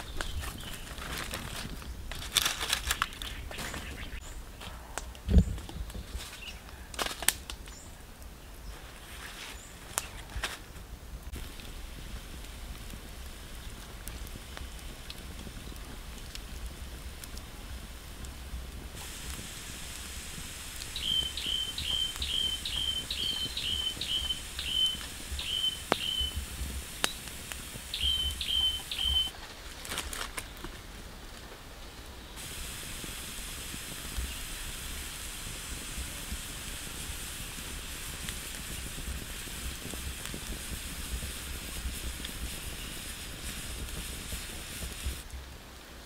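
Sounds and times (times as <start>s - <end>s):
sharp crackles: 0.0s - 46.0s
steady hiss: 0.0s - 46.0s
bird whistling short notes: 27.9s - 29.3s.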